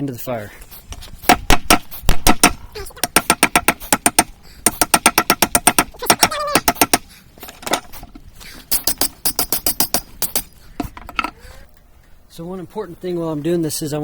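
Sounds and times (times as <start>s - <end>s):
ringing metal-on-metal taps: 2.3s - 7.1s, 8.7s - 11.4s.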